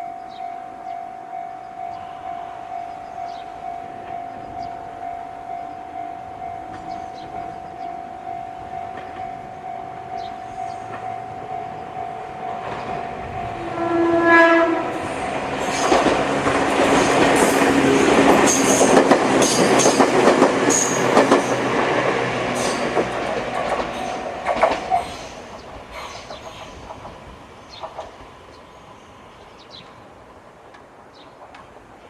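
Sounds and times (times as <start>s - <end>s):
train horn blast: 7.7s - 18.9s
wheels clattering over rail joints: 15.4s - 28.3s.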